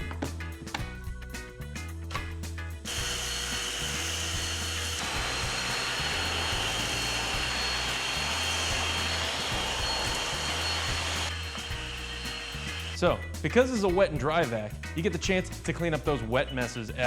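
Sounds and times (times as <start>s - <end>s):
shop vacuum running: 2.9s - 13.0s.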